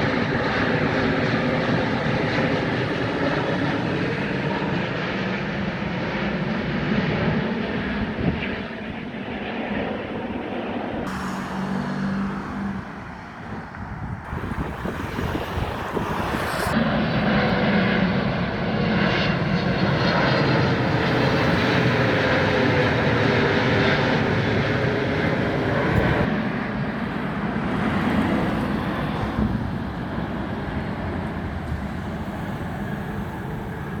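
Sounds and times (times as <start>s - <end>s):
jet airliner flying over: 0.0s - 34.0s.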